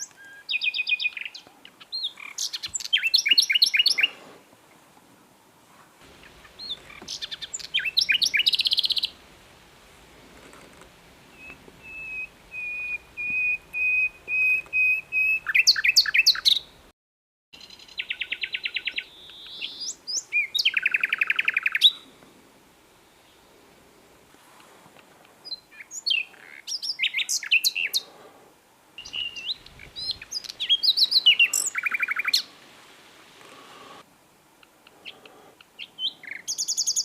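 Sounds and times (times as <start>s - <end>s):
nightingale singing: 0.0s - 4.2s, 6.0s - 9.4s, 11.2s - 16.8s, 17.6s - 22.1s, 25.4s - 28.1s, 29.0s - 32.5s, 34.6s - 37.0s.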